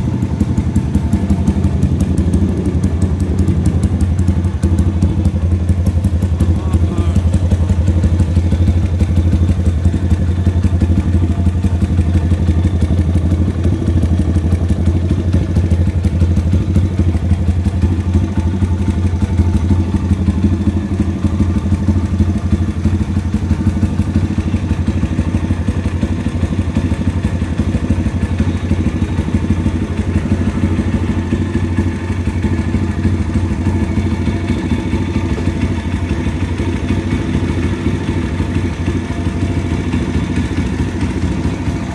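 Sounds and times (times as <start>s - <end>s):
motorbike engine running steadily: 0.0s - 41.9s.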